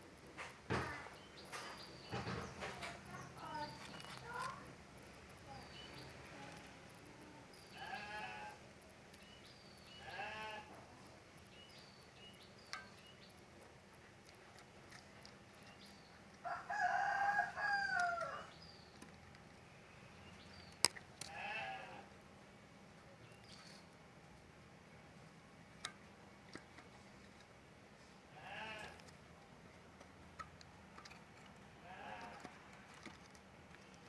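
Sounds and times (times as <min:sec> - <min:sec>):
rooster crowing: 0:16.4 - 0:18.6.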